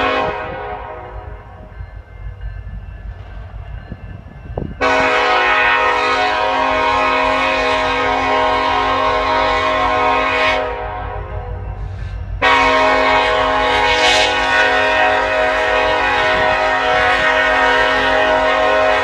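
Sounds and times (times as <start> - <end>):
locomotive air horn blasts: 0.0 - 1.3, 4.8 - 11.6, 12.4 - 19.0
low train rumble: 0.0 - 19.0.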